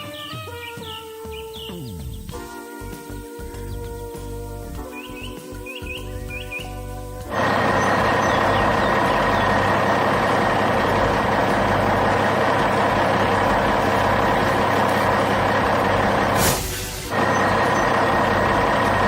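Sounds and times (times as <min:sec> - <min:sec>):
heavy truck engine running: 0:07.3 - 0:19.0
short hiss: 0:16.2 - 0:17.4.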